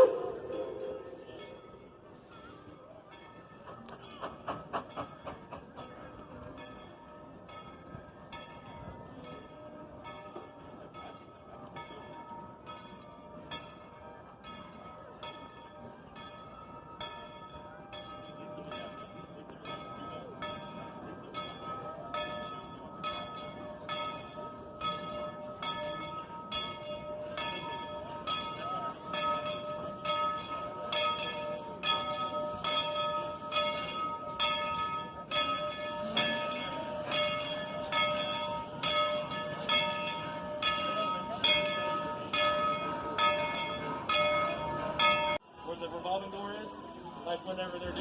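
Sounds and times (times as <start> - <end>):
locomotive bell ringing: 0.0 - 48.0.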